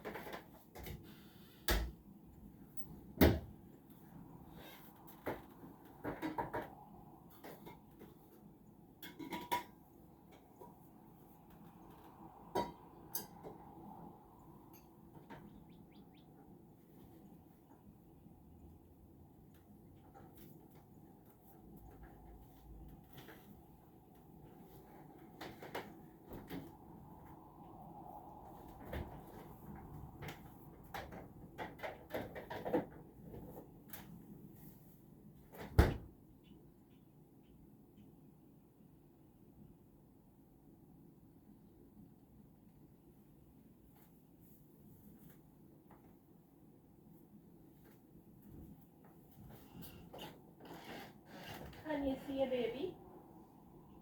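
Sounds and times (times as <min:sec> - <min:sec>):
dishes clinking: 0:09.0 - 0:09.9
kitchen clicks and knocks: 0:09.0 - 0:10.7
small birds chirping: 0:15.2 - 0:17.5.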